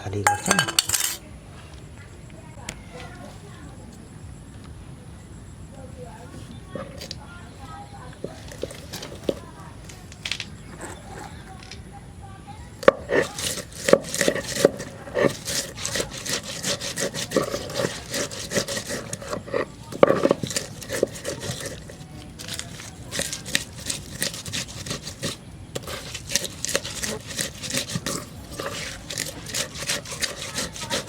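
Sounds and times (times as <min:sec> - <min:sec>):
spatula scraping metal pan: 0:00.0 - 0:01.2, 0:06.5 - 0:07.2, 0:08.2 - 0:09.6, 0:12.7 - 0:31.0.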